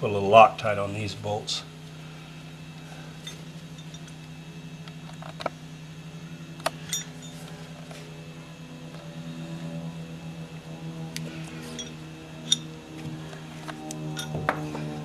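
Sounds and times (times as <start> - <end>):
steady low hum: 0.0 - 15.0
metal tools clinking: 3.2 - 4.2, 6.8 - 7.5, 11.6 - 12.7, 14.1 - 14.5.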